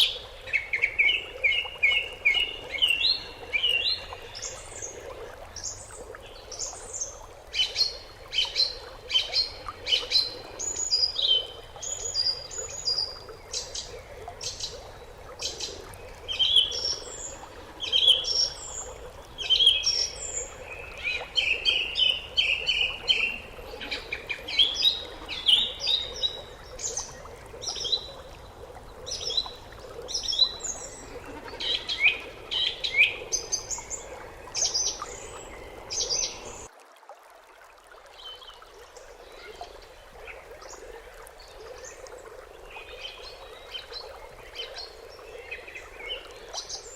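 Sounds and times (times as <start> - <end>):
small birds chirping: 0.0 - 36.7.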